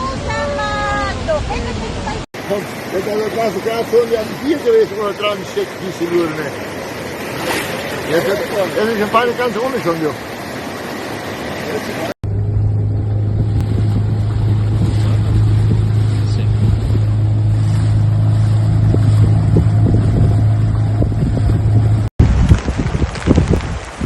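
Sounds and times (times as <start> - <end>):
loud low rumble with hum: 12.2 - 23.6
wind buffeting microphone: 12.3 - 24.0.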